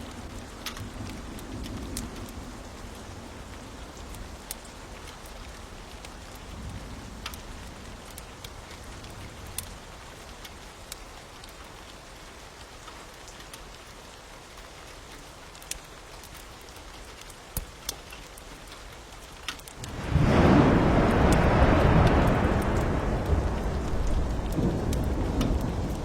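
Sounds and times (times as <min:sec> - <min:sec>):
sharp crackles and pops: 0:00.0 - 0:26.0
steady rain: 0:00.0 - 0:26.0
heavy rushing noise: 0:19.8 - 0:26.0.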